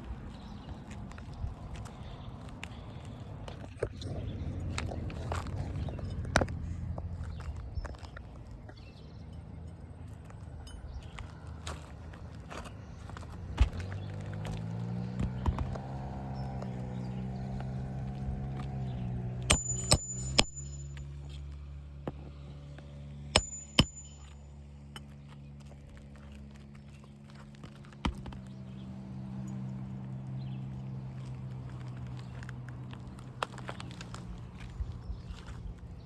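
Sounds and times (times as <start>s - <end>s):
low motor hum: 0.0s - 36.0s
hammer striking nails on roof: 19.5s - 20.7s, 23.4s - 24.3s.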